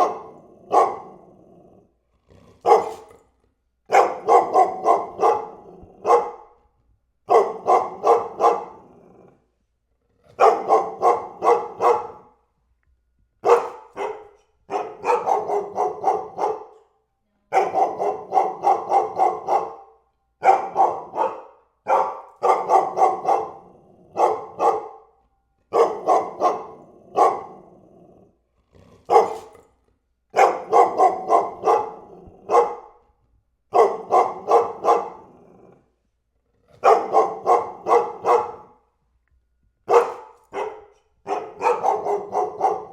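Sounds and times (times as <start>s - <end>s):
dog barking: 0.0s - 1.3s, 2.6s - 3.2s, 3.9s - 8.9s, 10.4s - 12.4s, 13.4s - 27.8s, 29.1s - 29.7s, 30.3s - 33.1s, 33.7s - 35.9s, 36.8s - 38.9s, 39.8s - 42.9s.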